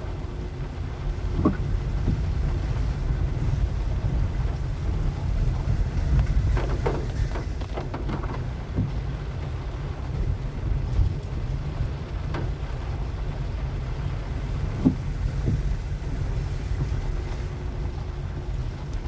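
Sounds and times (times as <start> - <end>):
car driving on wet street: 0.0 - 19.0
short knocks and creaks: 1.3 - 2.4, 4.0 - 9.2, 14.7 - 19.0.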